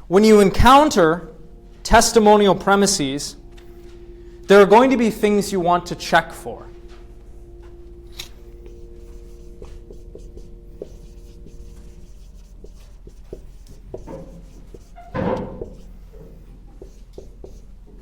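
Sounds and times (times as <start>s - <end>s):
steady low hum: 0.0s - 18.0s
writing on a board: 8.6s - 18.0s.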